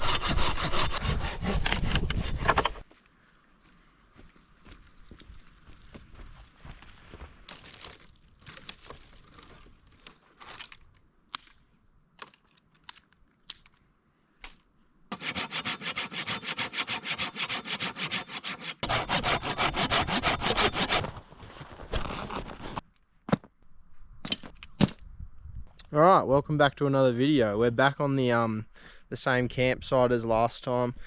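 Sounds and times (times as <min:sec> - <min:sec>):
hand saw cutting wood: 0:00.0 - 0:02.8, 0:15.1 - 0:21.2, 0:22.0 - 0:22.8.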